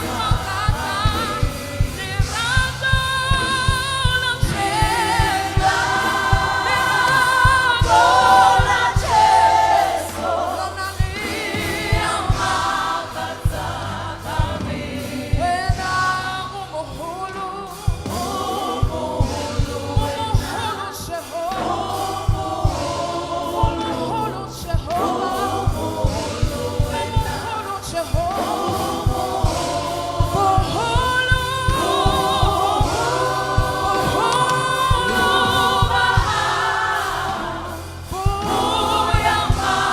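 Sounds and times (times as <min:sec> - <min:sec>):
band playing: 0:00.0 - 0:39.9
gospel choir singing: 0:00.0 - 0:39.9
steady drum beats: 0:00.0 - 0:39.9.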